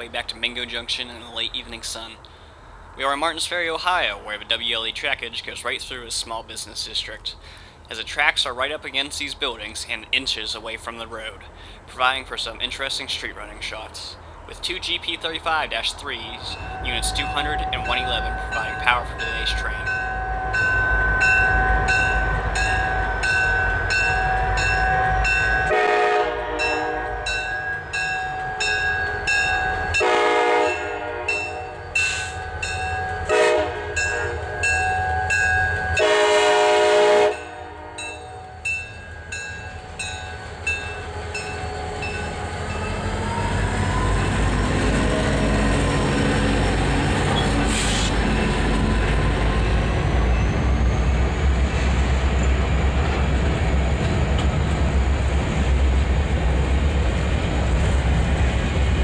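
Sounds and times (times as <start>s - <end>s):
locomotive engine rumble: 0.0s - 59.0s
crossing bell ringing: 14.8s - 51.4s
locomotive horn: 16.4s - 27.6s, 28.6s - 32.3s, 33.2s - 38.7s.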